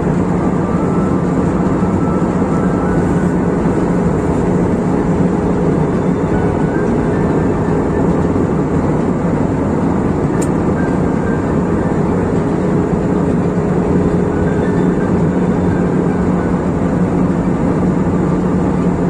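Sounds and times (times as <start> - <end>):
airliner cabin engine drone: 0.0 - 19.0.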